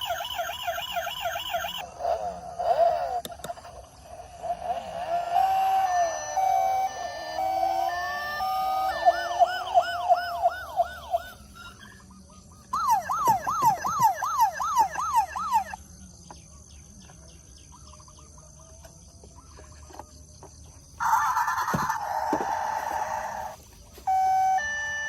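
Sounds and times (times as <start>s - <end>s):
toy siren: 0.0s - 12.0s, 12.7s - 15.8s, 21.0s - 25.0s.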